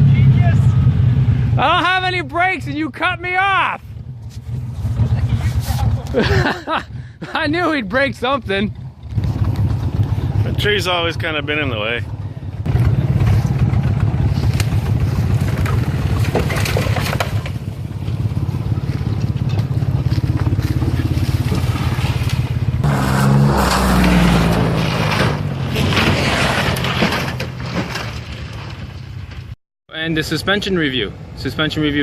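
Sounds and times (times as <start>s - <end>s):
vehicle engine running: 3.8s - 26.0s
scraping and crunching over rough ground: 12.7s - 29.6s.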